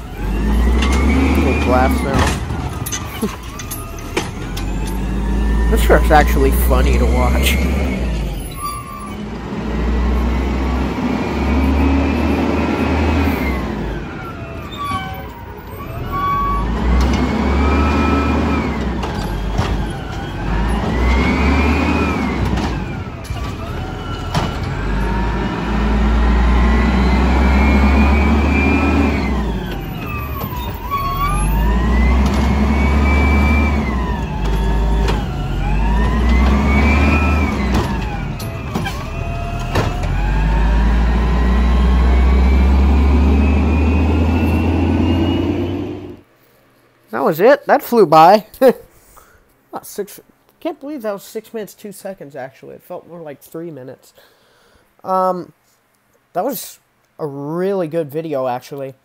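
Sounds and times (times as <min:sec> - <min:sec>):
truck diesel engine revving: 0:00.0 - 0:46.3.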